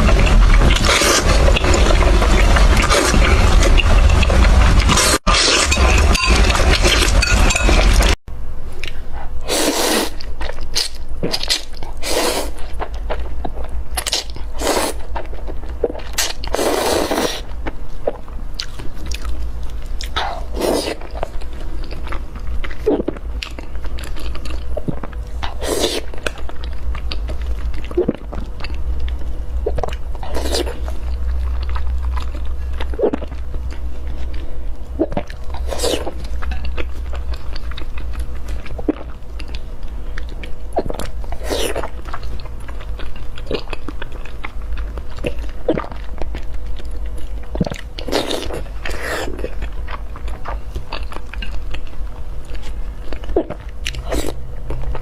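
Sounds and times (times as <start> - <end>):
person chewing crunchy food: 0.0 - 8.2, 8.8 - 55.0
low hum: 0.0 - 9.5, 17.5 - 55.0.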